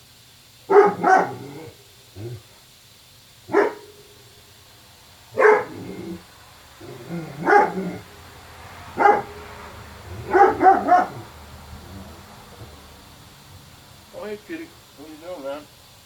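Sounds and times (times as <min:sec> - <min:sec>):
dog barking: 0:00.7 - 0:02.4, 0:03.5 - 0:04.1, 0:05.3 - 0:08.1, 0:08.9 - 0:12.8.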